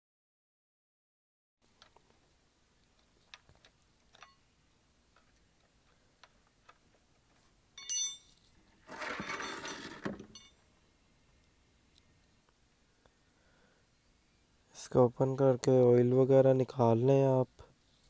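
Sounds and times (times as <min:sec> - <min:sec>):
metal tool clinking on bolt: 0:04.1 - 0:04.4, 0:07.8 - 0:10.6
rough scraping noise: 0:08.8 - 0:10.4.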